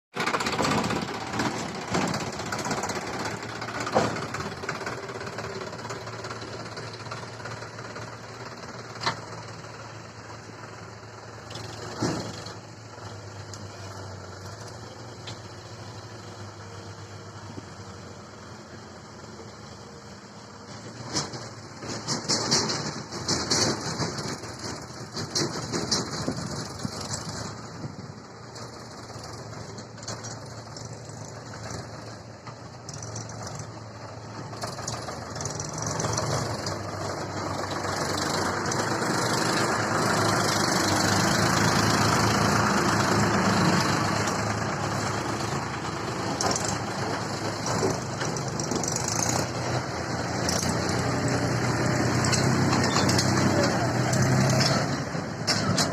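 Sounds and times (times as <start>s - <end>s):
tractor diesel engine running: 0.1s - 55.9s
knocks and rattles: 0.2s - 9.4s, 20.8s - 27.7s, 44.0s - 55.9s.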